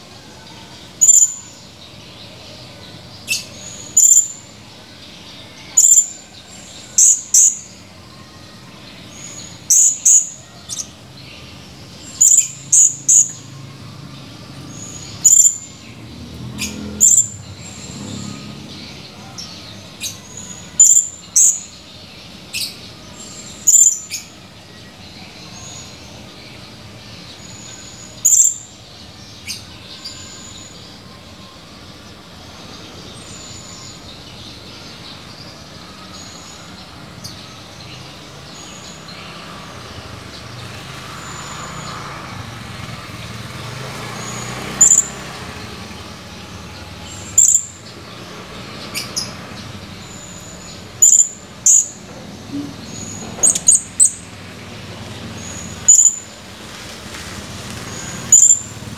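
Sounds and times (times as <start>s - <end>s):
parrot high-pitched calls: 1.0s - 1.6s, 3.3s - 4.4s, 5.7s - 6.2s, 9.7s - 10.9s, 12.2s - 13.4s, 15.2s - 15.8s, 20.4s - 21.7s, 23.6s - 24.3s, 28.2s - 28.6s, 44.8s - 45.2s, 47.4s - 47.8s, 51.0s - 52.0s, 55.8s - 56.3s, 58.3s - 58.7s.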